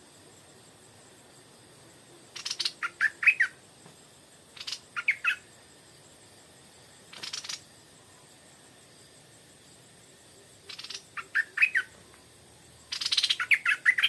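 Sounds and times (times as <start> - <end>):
bird harsh rasping chatter: 2.4 - 3.1, 7.2 - 7.6
bird whistled notes: 12.9 - 14.0.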